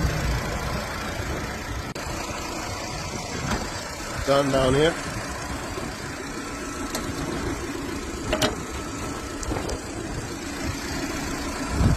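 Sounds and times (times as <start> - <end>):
car engine idling: 0.0 - 11.9.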